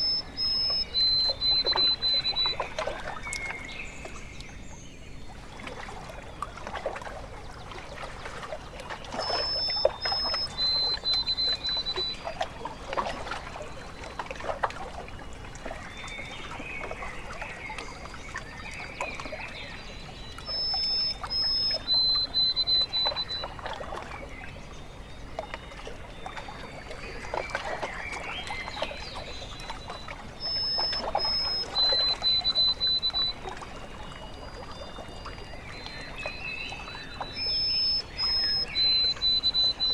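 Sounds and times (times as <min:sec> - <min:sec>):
high bird call: 0:00.0 - 0:02.7, 0:37.0 - 0:39.9
water lapping at shore: 0:00.0 - 0:39.9.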